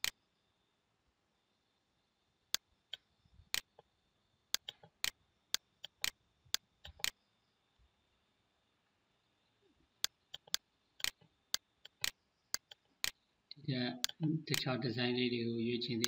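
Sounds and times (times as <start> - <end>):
computer mouse clicking: 2.5 - 3.8, 4.5 - 7.2, 10.0 - 13.2.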